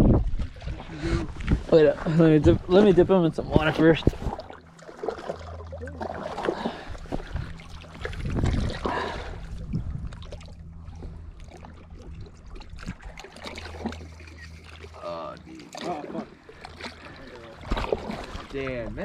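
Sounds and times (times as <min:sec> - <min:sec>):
water splashing and trickling: 0:00.0 - 0:19.0.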